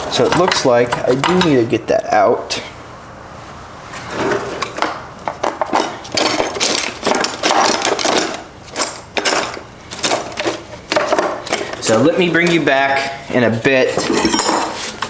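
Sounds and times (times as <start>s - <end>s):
hand tools clinking on metal: 5.5s - 13.1s, 13.9s - 14.9s.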